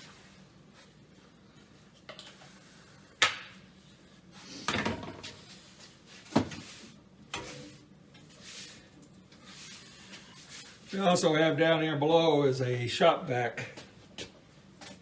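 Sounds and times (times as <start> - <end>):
scraping rustle: 5.3 - 11.2.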